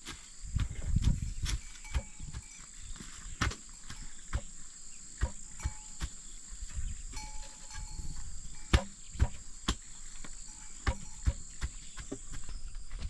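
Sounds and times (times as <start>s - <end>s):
irregular knocks and taps: 3.3s - 4.6s, 5.2s - 6.2s, 7.4s - 13.0s.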